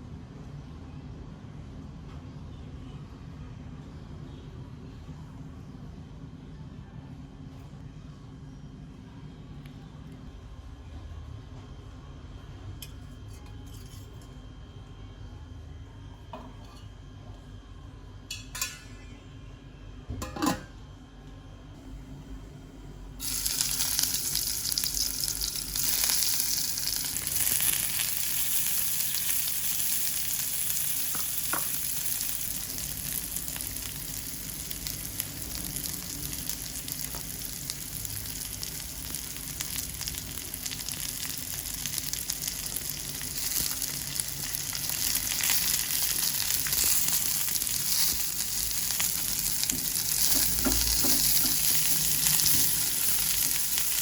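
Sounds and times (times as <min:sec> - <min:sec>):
food sizzling in hot oil: 0:23.2 - 0:54.0.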